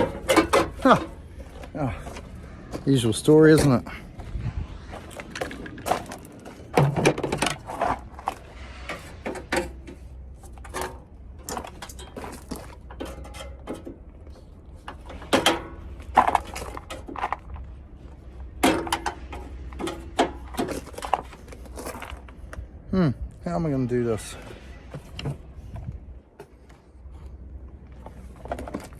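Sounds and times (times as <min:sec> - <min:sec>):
hand tools clanking on metal: 0:00.0 - 0:04.0, 0:05.1 - 0:17.7, 0:18.4 - 0:22.3.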